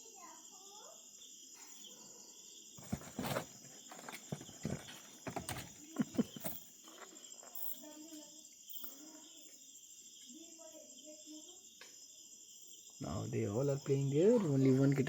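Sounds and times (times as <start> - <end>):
crickets chirping: 0.0 - 15.0
kittens scrambling in cardboard boxes: 2.8 - 6.9.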